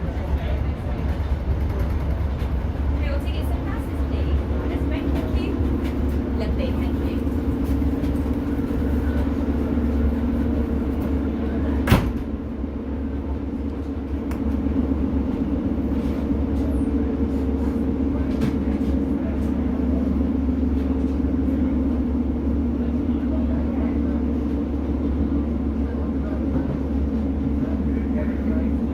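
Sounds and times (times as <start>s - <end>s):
train engine drone: 0.0s - 28.9s.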